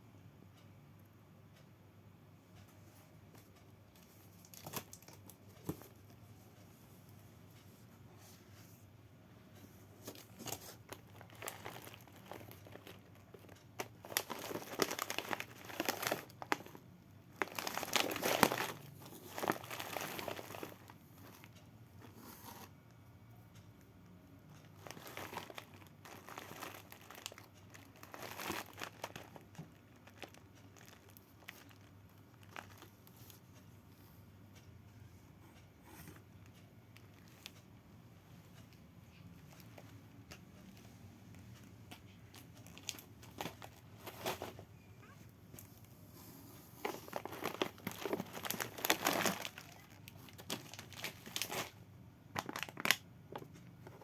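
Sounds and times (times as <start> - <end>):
packaging crumpling and tearing: 10.1 - 16.8, 17.4 - 21.5, 24.7 - 32.9, 46.8 - 51.8, 52.4 - 53.4.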